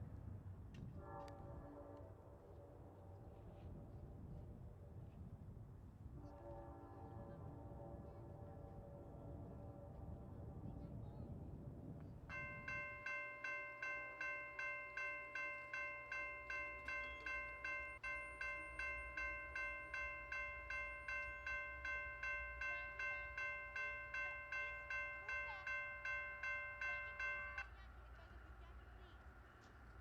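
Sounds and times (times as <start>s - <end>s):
railroad crossing bell ringing: 12.3s - 28.4s.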